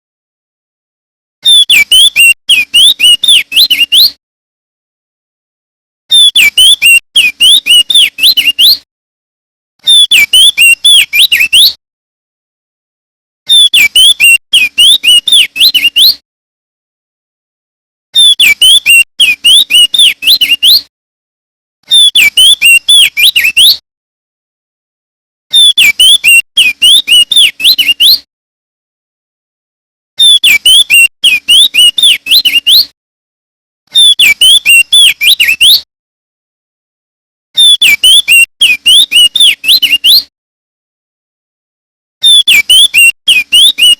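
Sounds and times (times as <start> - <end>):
bird singing chirpy whistles: 22.0 - 23.8.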